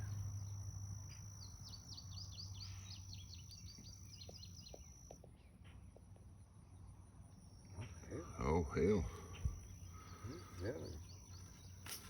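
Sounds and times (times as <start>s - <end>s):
high-pitched insect drone: 7.3s - 12.0s.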